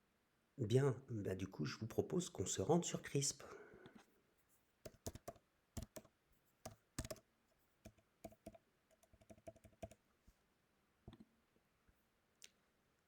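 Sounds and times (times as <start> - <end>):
faint keyboard typing: 4.8 - 10.0.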